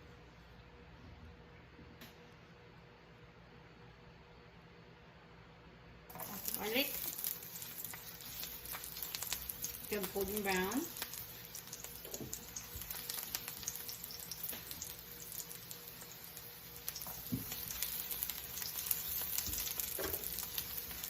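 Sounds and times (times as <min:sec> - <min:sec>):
garlic sizzling in oil: 0:06.1 - 0:21.0.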